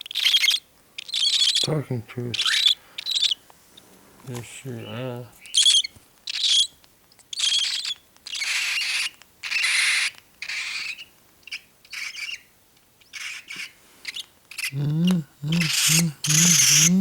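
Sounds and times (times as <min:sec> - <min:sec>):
chick making raspy calls: 0:13.2 - 0:17.0.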